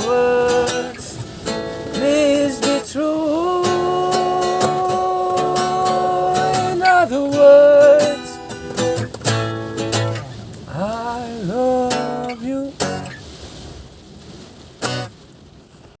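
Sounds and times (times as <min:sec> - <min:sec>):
person singing: 0:00.0 - 0:01.4, 0:02.0 - 0:08.6, 0:10.1 - 0:13.1
strummed string accompaniment: 0:00.0 - 0:13.2, 0:14.8 - 0:15.2.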